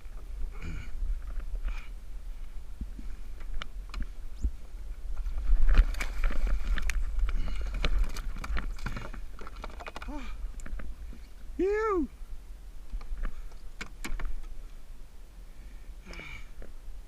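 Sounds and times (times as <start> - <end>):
wind rumble on microphone: 0.0 - 17.0
gear knocking and rubbing on kayak: 2.8 - 11.3.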